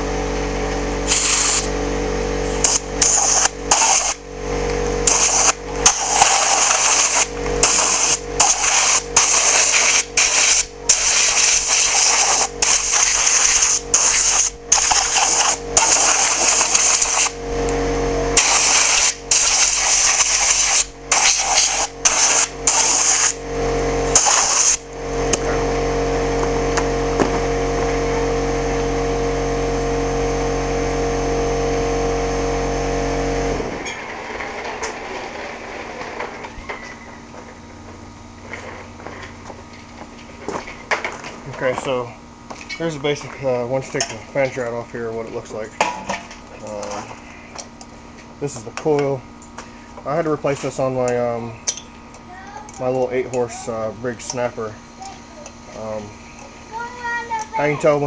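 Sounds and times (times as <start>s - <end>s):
air compressor running: 0.0s - 58.0s
air hissing from blow gun: 1.0s - 1.8s, 2.4s - 4.2s, 5.0s - 17.4s, 18.4s - 23.4s, 24.1s - 24.8s.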